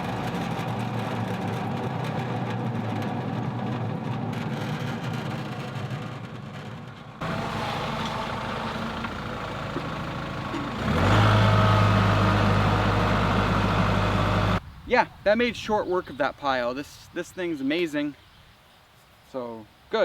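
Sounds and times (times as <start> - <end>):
wood chipper running: 0.0 - 14.6.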